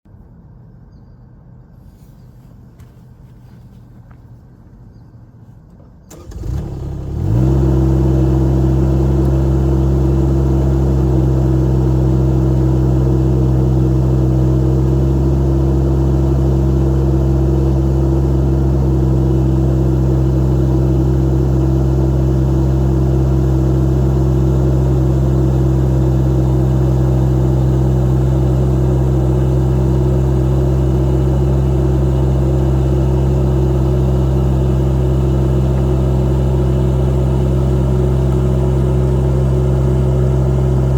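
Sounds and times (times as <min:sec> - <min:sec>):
diesel engine running: 0:05.7 - 0:40.9.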